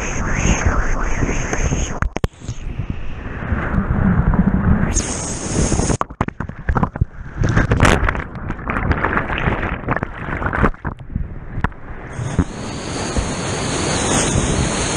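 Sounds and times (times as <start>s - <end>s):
whitewater churning and splashing: 5.2s - 11.0s.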